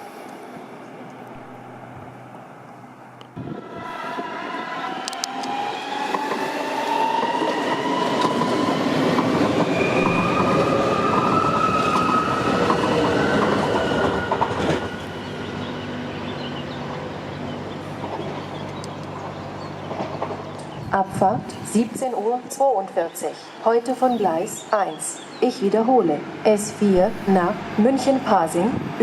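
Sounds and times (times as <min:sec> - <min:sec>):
electric train motors whining: 0:00.0 - 0:21.0
train wheels rumbling on rail: 0:00.0 - 0:29.0.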